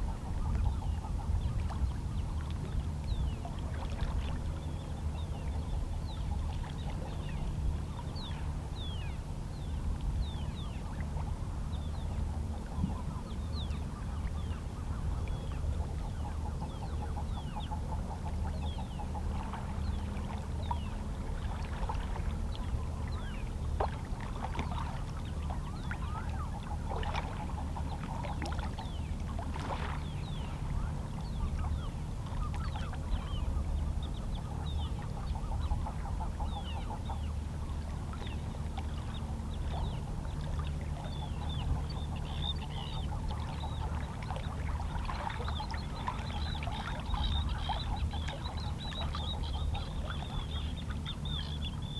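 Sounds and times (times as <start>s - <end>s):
seabirds calling: 24.7s - 51.9s.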